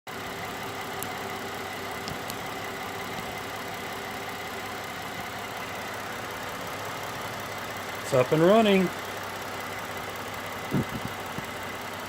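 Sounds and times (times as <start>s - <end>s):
car engine idling: 0.1s - 12.0s.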